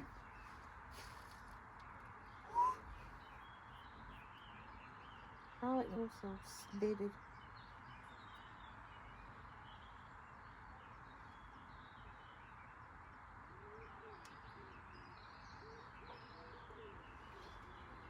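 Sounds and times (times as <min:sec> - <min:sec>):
faint bird cooing: 0:02.4 - 0:03.4, 0:13.5 - 0:18.0.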